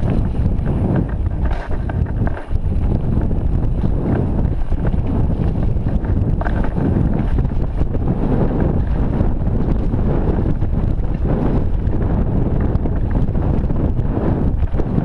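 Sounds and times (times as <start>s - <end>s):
bike knocks and rattles: 0.0s - 15.0s
wind buffeting microphone: 0.0s - 15.0s.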